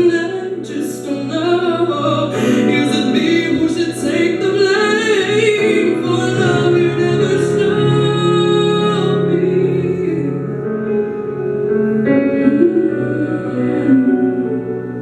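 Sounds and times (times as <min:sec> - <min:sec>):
instrumental backing: 0:00.0 - 0:15.0
woman singing long notes: 0:12.2 - 0:14.8.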